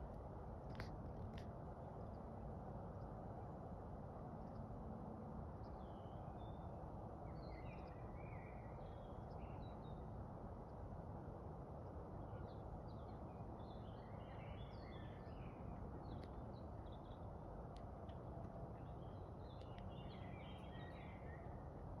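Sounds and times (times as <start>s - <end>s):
small birds twittering: 18.8s - 21.6s.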